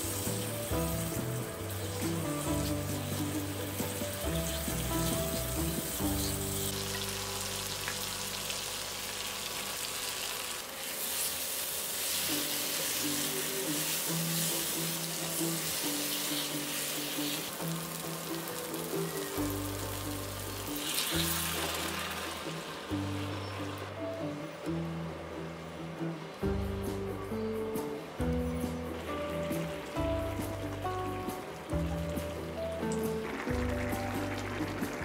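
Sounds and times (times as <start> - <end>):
background music: 0.0 - 9.3, 12.0 - 35.0
eggplant sizzling in frying pan: 0.0 - 24.0.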